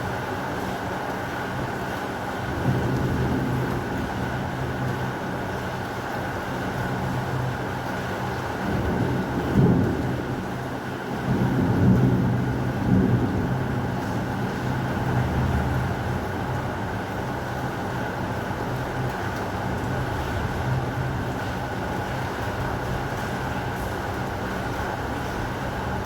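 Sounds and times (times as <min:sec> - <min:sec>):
heavy rain: 0:00.0 - 0:26.0
low rolls of thunder: 0:08.6 - 0:10.5, 0:11.1 - 0:16.0.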